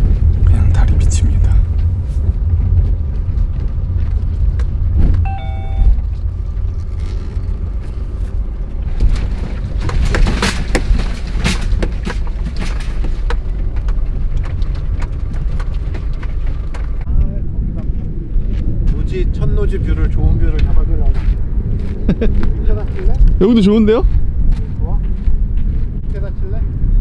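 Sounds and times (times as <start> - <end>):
car engine and road rumble: 0.0 - 17.2, 18.6 - 24.5
short electronic beep: 5.2 - 6.0.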